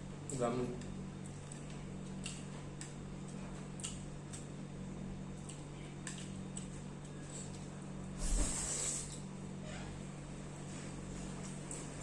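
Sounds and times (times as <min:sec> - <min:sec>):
low electrical hum: 0:00.0 - 0:12.0
person chewing: 0:03.8 - 0:04.5.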